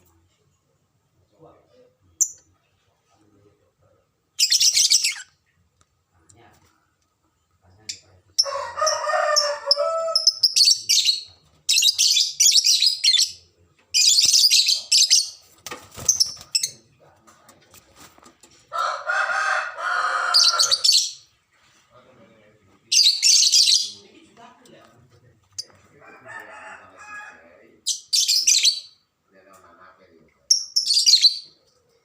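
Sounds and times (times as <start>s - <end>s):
lovebirds chirping shrilly: 4.4s - 5.4s, 10.1s - 13.4s, 14.0s - 16.8s, 20.2s - 21.3s, 22.9s - 24.0s, 30.5s - 31.5s.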